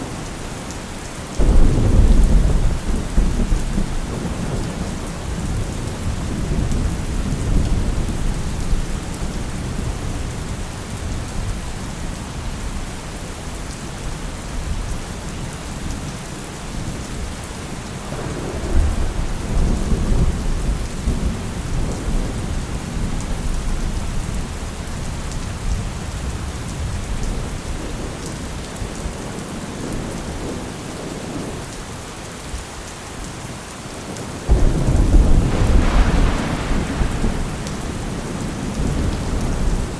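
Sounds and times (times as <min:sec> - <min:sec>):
rolling thunder: 0:01.4 - 0:10.2, 0:18.1 - 0:24.3, 0:34.5 - 0:39.9
rain hissing: 0:34.5 - 0:39.9.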